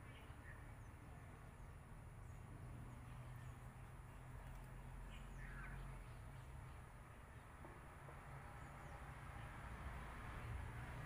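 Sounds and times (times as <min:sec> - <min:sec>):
bird calls: 0:03.3 - 0:06.8.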